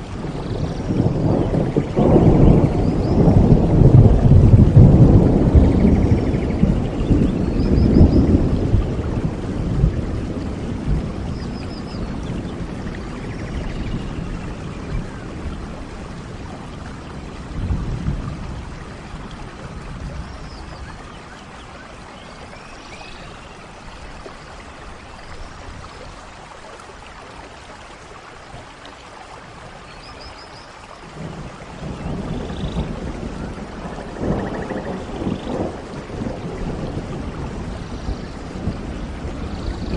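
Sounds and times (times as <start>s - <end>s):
thunder rumbling: 0.0s - 21.8s, 31.1s - 39.9s
rain hissing: 0.0s - 39.9s.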